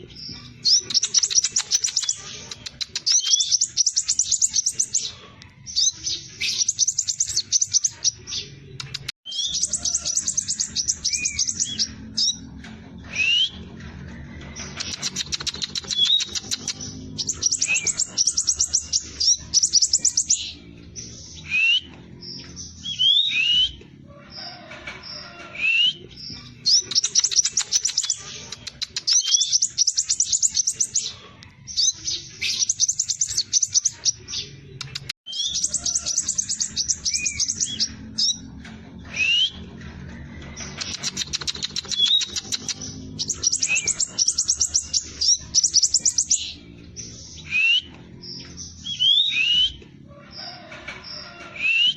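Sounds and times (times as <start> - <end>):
bird trilling: 0.0 - 12.5, 14.6 - 23.8, 35.0 - 38.5, 40.6 - 46.7.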